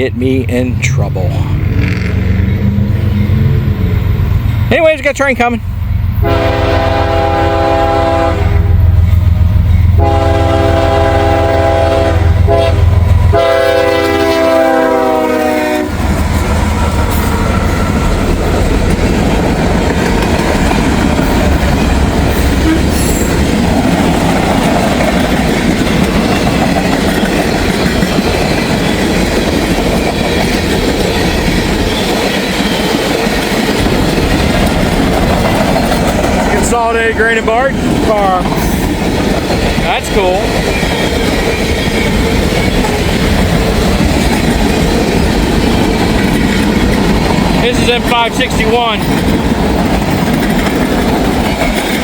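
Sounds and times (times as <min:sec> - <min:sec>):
locomotive engine rumble: 0:00.0 - 0:52.0
train air horn blasts: 0:06.2 - 0:09.0, 0:09.9 - 0:16.0, 0:22.5 - 0:23.3
train wheels clacking on rails: 0:08.8 - 0:52.0.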